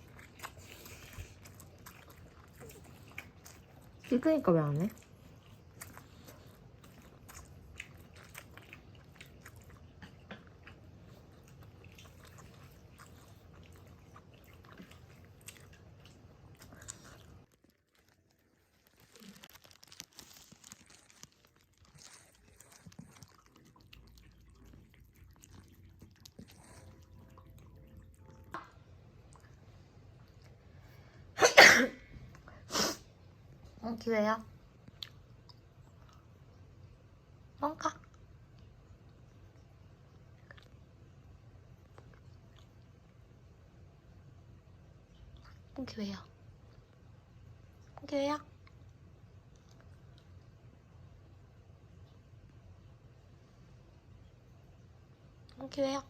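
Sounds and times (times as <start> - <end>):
cat chewing with crunching clicks: 0.0 - 31.2, 38.0 - 54.8.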